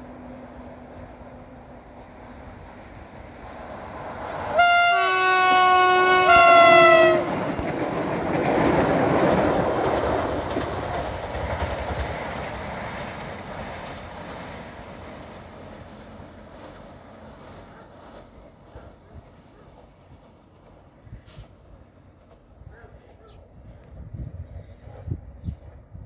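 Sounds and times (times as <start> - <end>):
train passing rumble: 0.0 - 26.0
train two-tone horn: 4.5 - 7.6.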